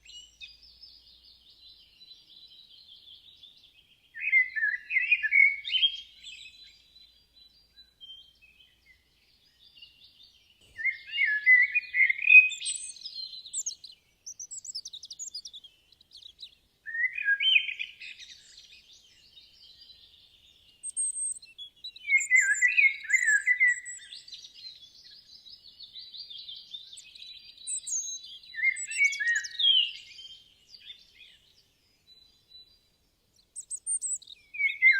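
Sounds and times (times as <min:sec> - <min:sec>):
birds chirping and trilling: 0:00.0 - 0:34.9
songbird warbling: 0:22.0 - 0:24.1.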